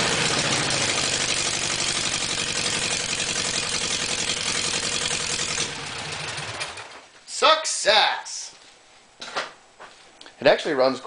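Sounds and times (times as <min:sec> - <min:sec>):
air-cooled engine running: 0:00.0 - 0:07.0.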